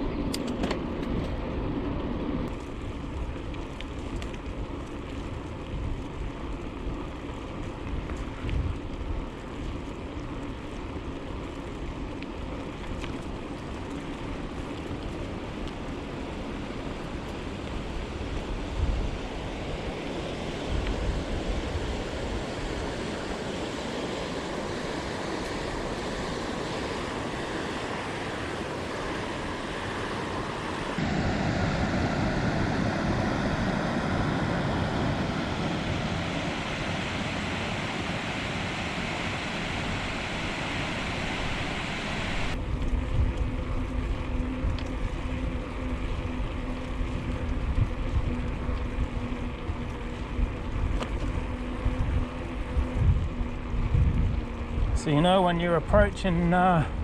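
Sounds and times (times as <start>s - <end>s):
bicycle ride rumble: 0.0s - 57.0s
faint steady hum: 0.0s - 57.0s
wind rushing over microphone: 15.4s - 57.0s.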